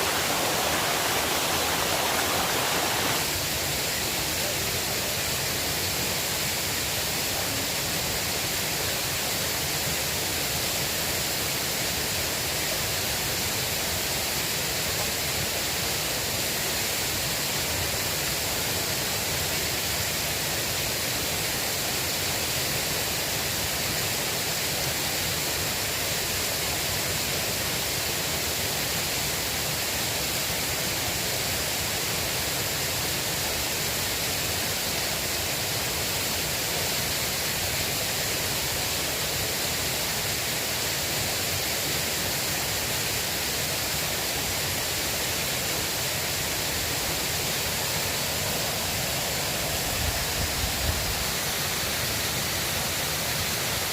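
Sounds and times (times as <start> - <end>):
river water rushing: 0.0 - 7.7, 32.7 - 53.9.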